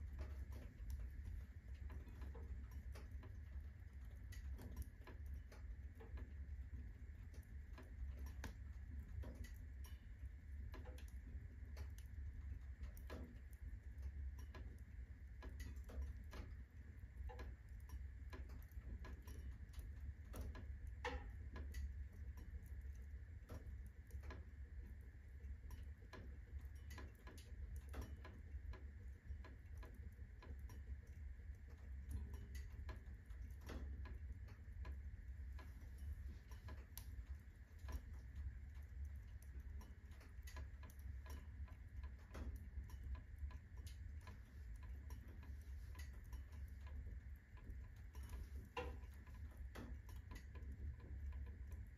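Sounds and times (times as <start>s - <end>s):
firewood crackling and popping: 0.0s - 51.9s
low fire rumble: 0.0s - 51.9s.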